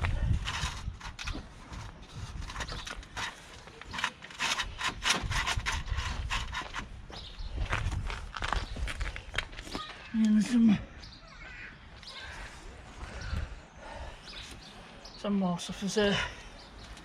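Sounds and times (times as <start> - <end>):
plastic bumper scraping and clicking: 0.3 - 7.0.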